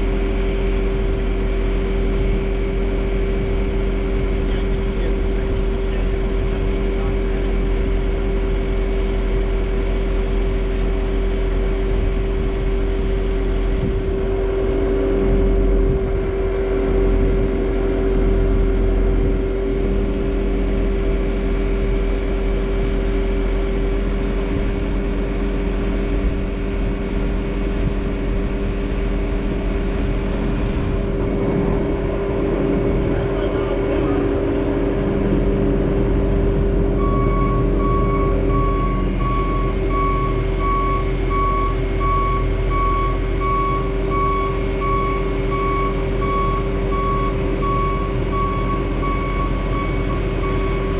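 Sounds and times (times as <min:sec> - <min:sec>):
diesel engine running with whine: 0:00.0 - 0:50.9.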